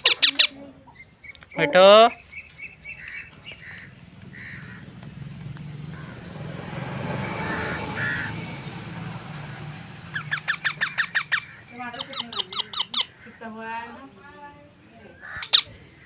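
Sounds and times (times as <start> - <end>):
faint bird calls: 0.0 - 4.9, 9.4 - 14.0, 14.9 - 16.0
vehicle passing by: 2.5 - 14.1.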